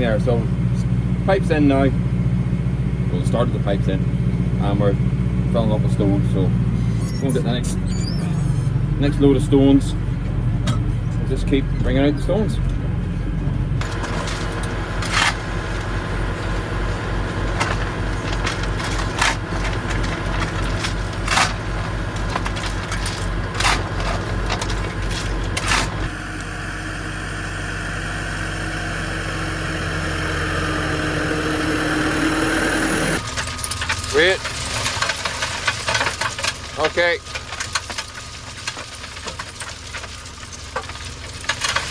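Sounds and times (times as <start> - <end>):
tractor engine running: 0.0 - 41.9
sharp knocks and rattles: 12.7 - 26.1.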